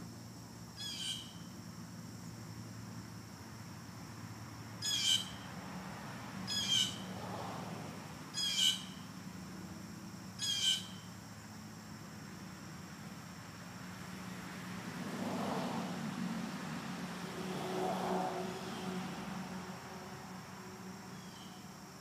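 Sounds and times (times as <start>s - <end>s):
bird calling: 8.4s - 9.0s, 10.4s - 11.1s.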